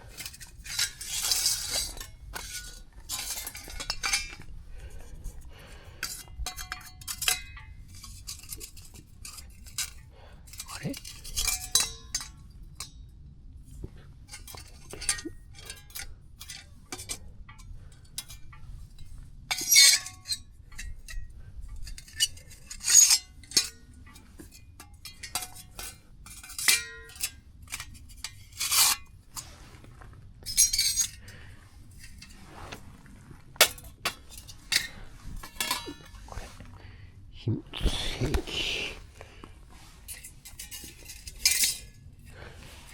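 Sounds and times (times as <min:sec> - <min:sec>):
camp cookware clinking: 0:00.1 - 0:13.2, 0:14.3 - 0:29.5, 0:33.6 - 0:36.8.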